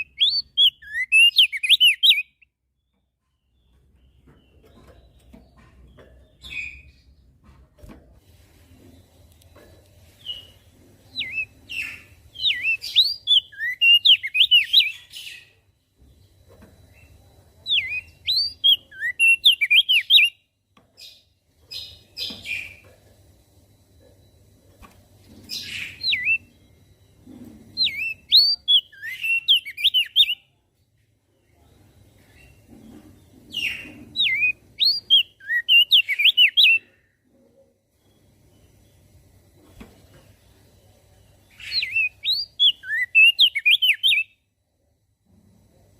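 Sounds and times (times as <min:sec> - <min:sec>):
bird singing chirps and whistles: 0:00.0 - 0:02.5, 0:10.2 - 0:15.5, 0:17.0 - 0:20.4, 0:25.5 - 0:26.6, 0:27.8 - 0:30.4, 0:33.6 - 0:36.9, 0:41.5 - 0:44.4
faint low hum: 0:00.0 - 0:45.9.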